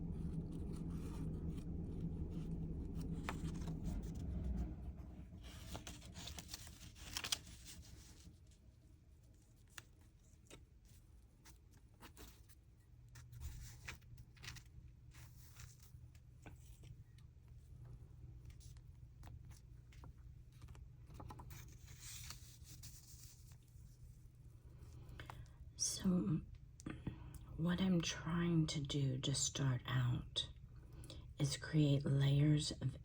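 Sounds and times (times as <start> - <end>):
low steady hum: 0.0 - 33.0
paper tearing rustle: 5.5 - 8.2.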